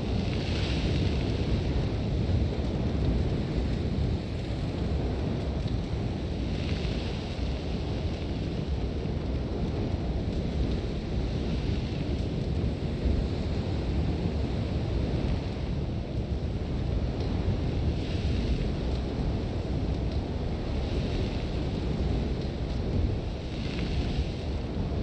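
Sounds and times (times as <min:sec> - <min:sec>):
sandstorm wind blowing hard: 0:00.0 - 0:25.0
hiss of blowing sand: 0:23.4 - 0:24.9.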